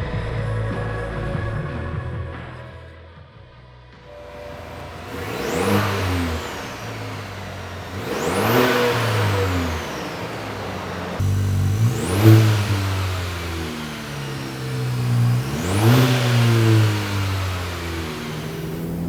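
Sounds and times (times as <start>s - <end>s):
turbocharged engine revving: 4.1s - 19.0s.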